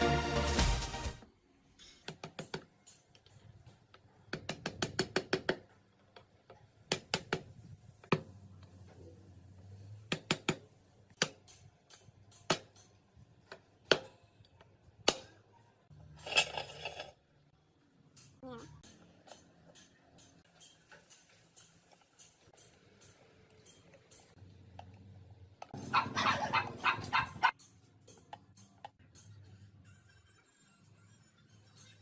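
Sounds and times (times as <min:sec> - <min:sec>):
clicks and taps on fan parts: 0:27.5 - 0:29.4.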